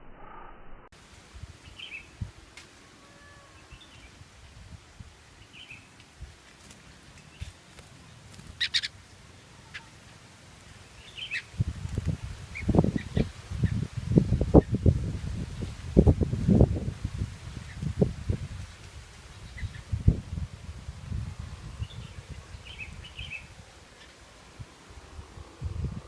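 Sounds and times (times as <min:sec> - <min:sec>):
low rumbling noise: 0:00.0 - 0:02.5, 0:19.9 - 0:26.0
bird chirping: 0:08.4 - 0:10.1, 0:10.9 - 0:11.6, 0:21.8 - 0:24.2.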